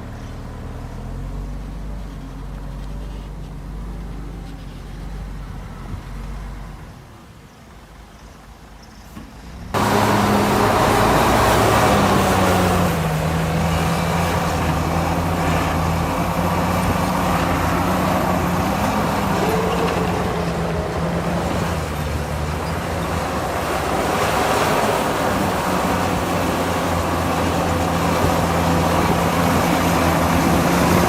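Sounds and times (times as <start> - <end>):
heavy diesel engine humming: 9.4 - 31.0.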